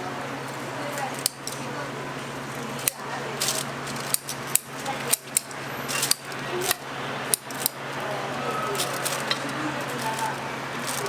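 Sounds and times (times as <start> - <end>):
background chatter: 0.0 - 11.0
metal utensils clinking: 2.4 - 11.0.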